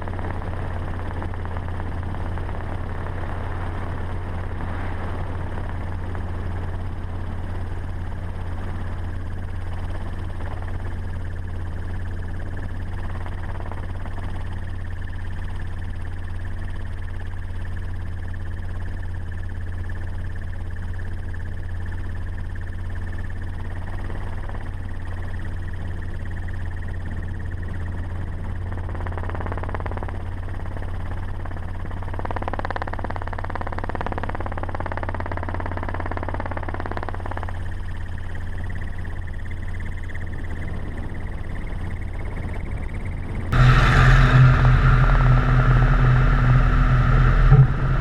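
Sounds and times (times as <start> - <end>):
vehicle engine drone: 0.0 - 48.0
wavering higher tone: 43.6 - 48.0.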